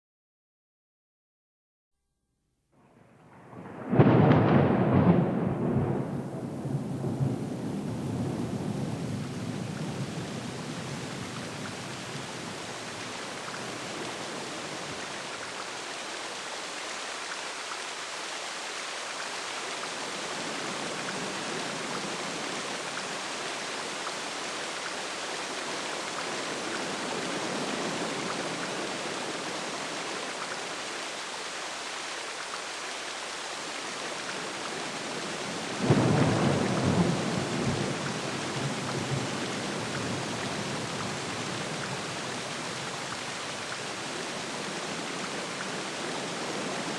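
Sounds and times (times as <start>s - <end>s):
heavy rain hissing: 3.0s - 46.9s
thunder rumble: 3.3s - 11.9s.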